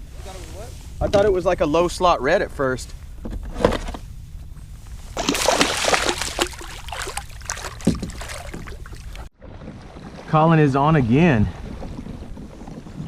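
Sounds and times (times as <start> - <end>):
low steady rumble: 0.0 - 12.6
water splashing and dripping: 5.2 - 10.3.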